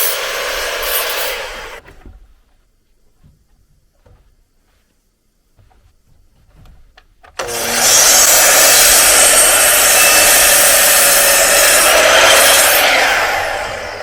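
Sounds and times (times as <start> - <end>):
circular saw cutting wood: 0.0 - 1.8, 7.4 - 14.0.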